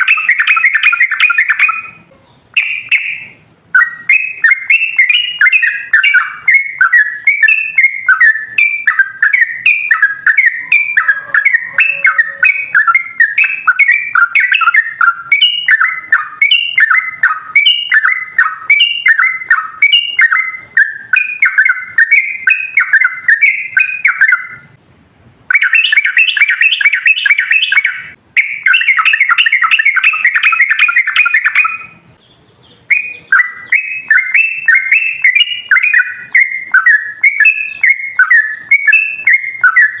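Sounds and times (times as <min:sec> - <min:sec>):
bird singing bubbling notes: 0:00.0 - 0:24.8, 0:25.5 - 0:40.0.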